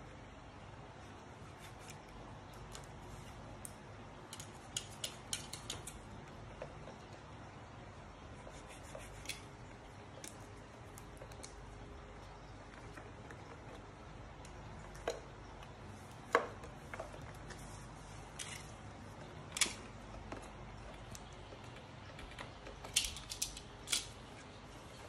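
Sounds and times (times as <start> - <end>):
plastic blender parts clicking: 22.1 - 24.2.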